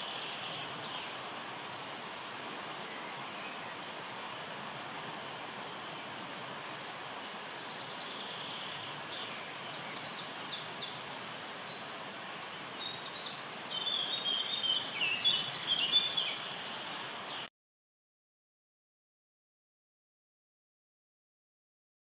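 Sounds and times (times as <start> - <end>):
songbirds trilling: 0.0 - 17.5
steady background hiss: 0.0 - 17.5.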